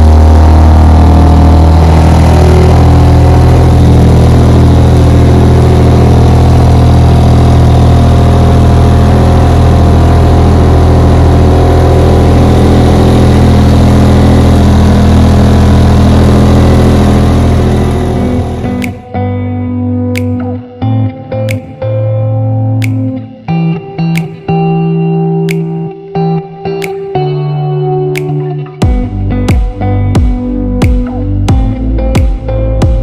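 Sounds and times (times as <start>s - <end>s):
two-stroke outboard motor running: 0.0s - 19.0s.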